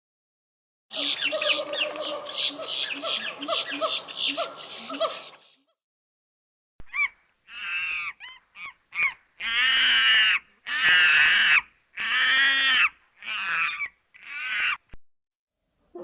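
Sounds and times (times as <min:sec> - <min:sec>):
harsh animal calls: 0:00.9 - 0:05.6.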